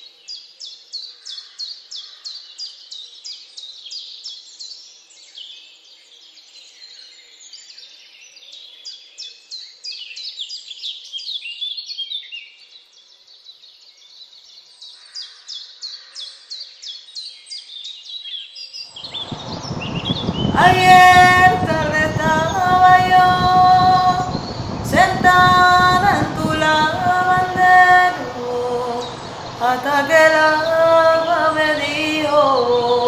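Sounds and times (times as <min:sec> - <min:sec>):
birds chirping: 0:19.0 - 0:33.0.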